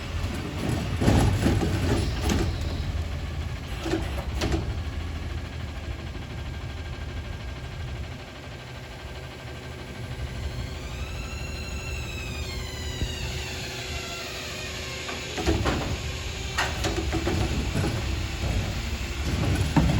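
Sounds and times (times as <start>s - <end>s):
clunks and knocks: 0.0s - 5.1s, 15.1s - 19.9s
garbage truck engine idling: 0.0s - 19.9s.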